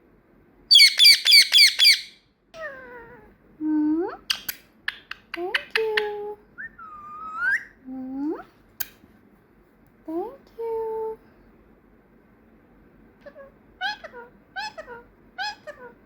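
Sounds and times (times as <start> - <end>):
parrot whistled calls: 0.7 - 2.2, 6.6 - 7.8
parrot squawking: 0.7 - 2.9, 6.6 - 7.8, 13.2 - 16.0.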